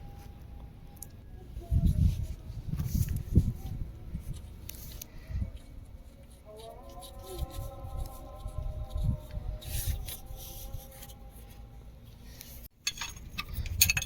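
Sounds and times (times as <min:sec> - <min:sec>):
faint steady tone: 0:00.0 - 0:06.5
spanner scraping and knocking: 0:12.8 - 0:14.0.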